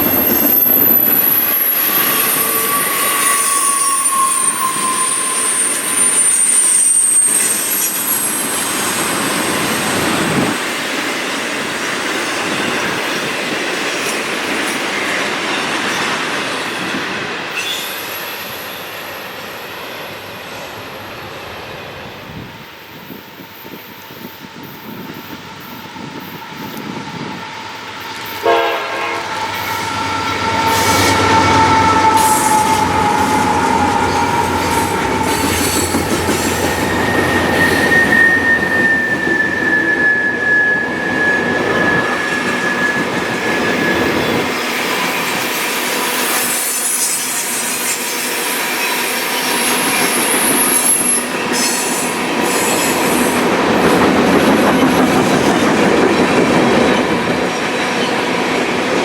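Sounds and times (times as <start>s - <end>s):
train wheels rolling on rails: 0.0s - 59.0s
train horn: 2.0s - 7.5s, 28.3s - 44.5s.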